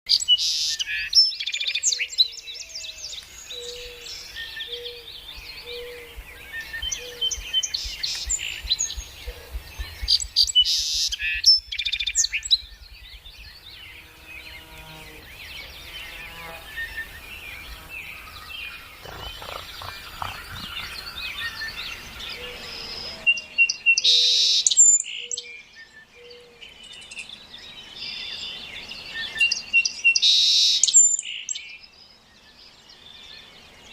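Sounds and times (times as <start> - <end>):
birds chirping and singing: 0.1 - 33.9.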